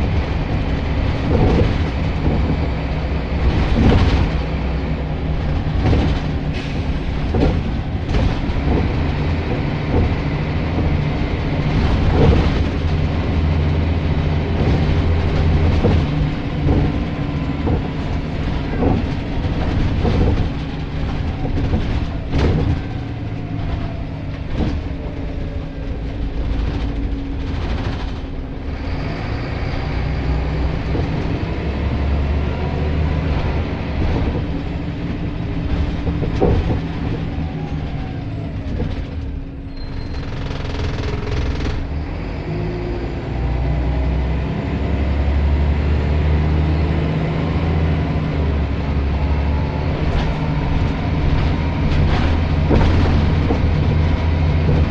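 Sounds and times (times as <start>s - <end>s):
body rattles: 0.0s - 29.1s, 38.7s - 42.0s, 47.8s - 54.9s
knocks and clatters: 0.0s - 42.4s, 45.8s - 54.9s
bus diesel engine running: 0.0s - 54.9s.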